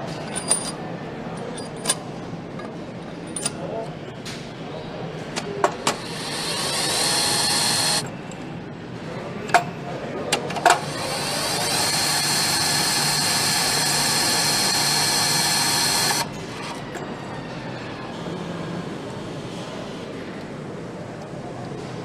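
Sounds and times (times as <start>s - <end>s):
power tool whining: 5.9s - 8.1s, 10.7s - 16.3s.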